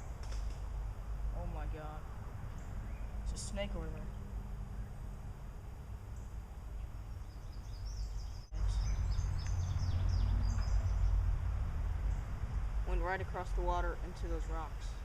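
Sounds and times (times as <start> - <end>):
steady low rumble: 0.0 - 15.0
small birds chirping: 2.4 - 5.2, 6.0 - 11.4.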